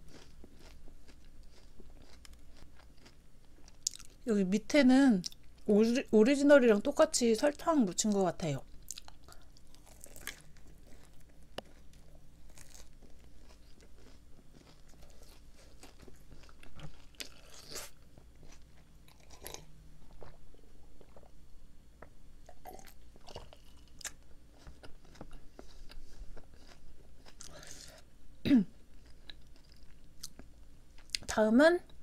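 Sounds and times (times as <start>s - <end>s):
biting and chewing doughnut: 0.0s - 4.2s, 8.8s - 21.4s, 22.5s - 28.1s.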